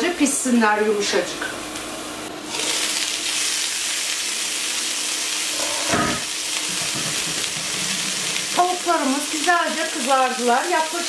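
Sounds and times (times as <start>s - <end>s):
chicken sizzling in hot oil: 1.7s - 11.0s.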